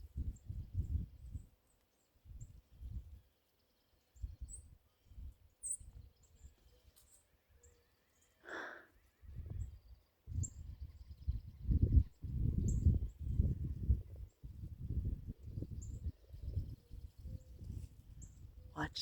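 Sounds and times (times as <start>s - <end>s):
wind buffeting microphone: 0.0s - 1.5s, 9.2s - 19.0s
faint high bird chirps: 0.3s - 13.1s.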